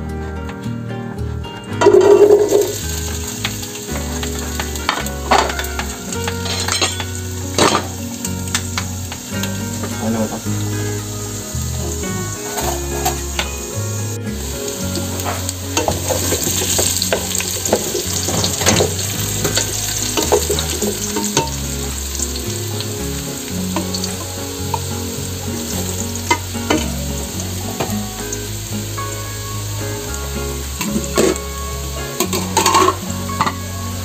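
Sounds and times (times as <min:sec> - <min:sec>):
vegetables sizzling in oil: 0:01.8 - 0:34.0
spatula scraping and knocking pot: 0:32.2 - 0:33.6.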